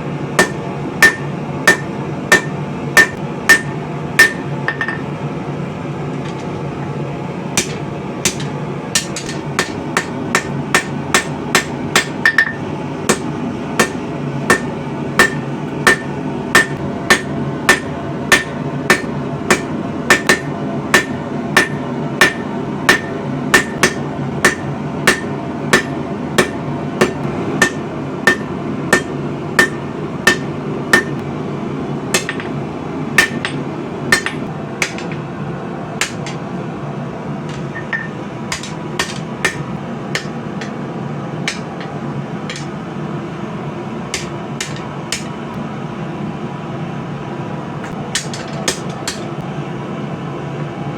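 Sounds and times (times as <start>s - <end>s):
hammer striking steel on anvil: 0.4s - 5.1s, 7.6s - 31.2s, 32.1s - 32.6s, 33.2s - 35.3s, 36.0s - 36.5s, 37.5s - 42.8s, 44.2s - 45.4s, 47.8s - 49.4s.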